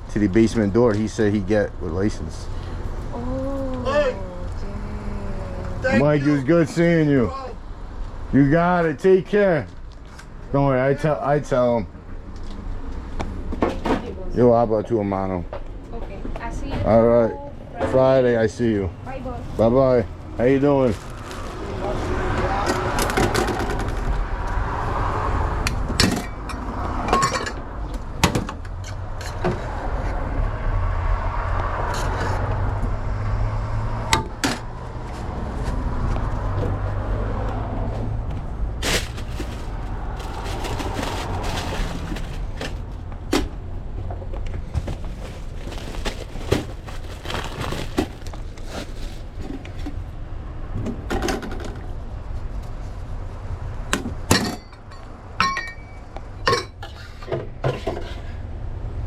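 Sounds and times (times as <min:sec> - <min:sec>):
utensils and lids clinking: 0:26.0 - 0:27.6.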